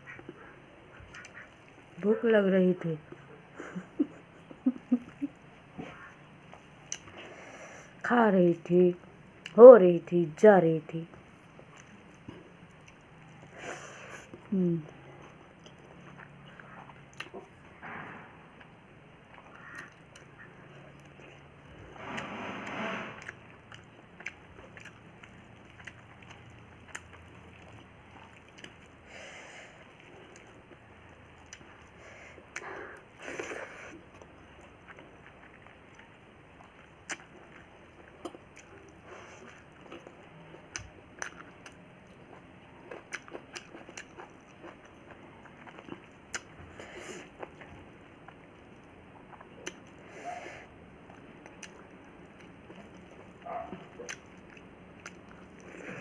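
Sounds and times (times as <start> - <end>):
person chewing food: 0.0 - 2.0, 3.2 - 7.6, 11.4 - 17.8, 18.5 - 22.2, 23.2 - 56.0.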